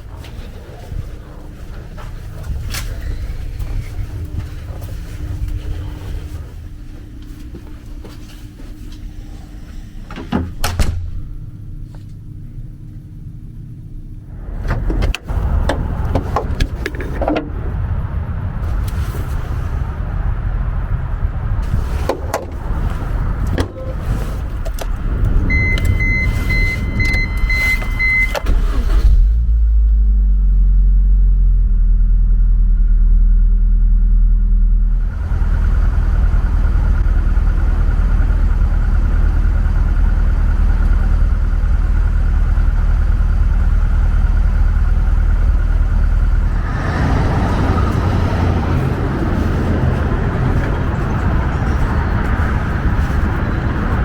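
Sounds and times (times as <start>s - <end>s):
car driving noise: 0.0s - 8.4s, 13.7s - 54.0s
car engine rumbling: 0.0s - 54.0s
repeated electronic beeps: 25.5s - 28.4s.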